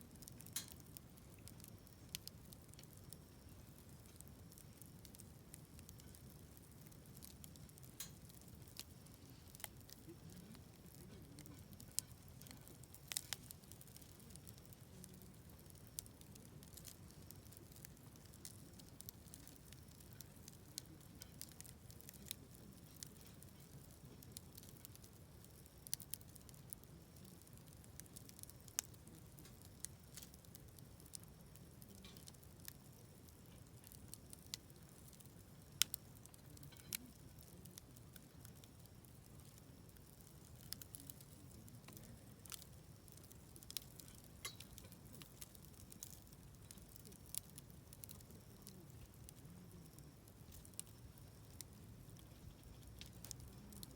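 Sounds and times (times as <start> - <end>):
wood fire crackling and popping: 0.0 - 53.9.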